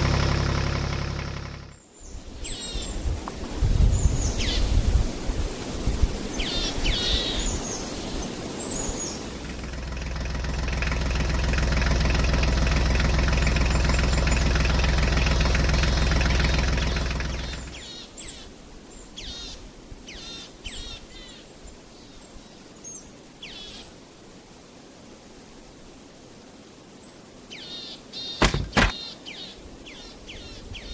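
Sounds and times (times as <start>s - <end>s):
birds chirping: 1.7s - 3.1s, 3.8s - 4.8s, 6.3s - 10.1s, 13.1s - 21.3s, 27.5s - 30.9s.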